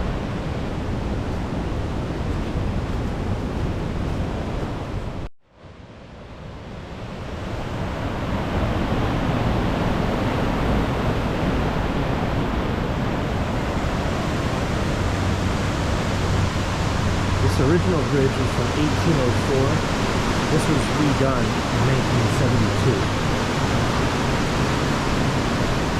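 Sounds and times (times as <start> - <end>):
waterfall rushing: 7.5 - 25.9.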